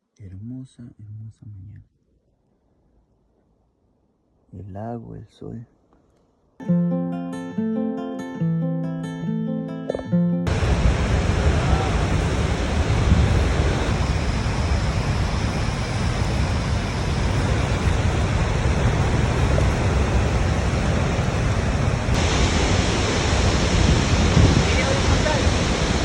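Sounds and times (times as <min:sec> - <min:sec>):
waterfall roaring: 0:10.5 - 0:26.0.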